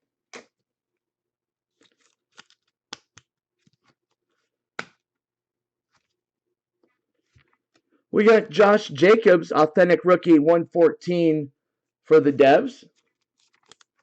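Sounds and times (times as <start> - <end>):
card sleeves rustling and clicking: 12.9 - 14.0.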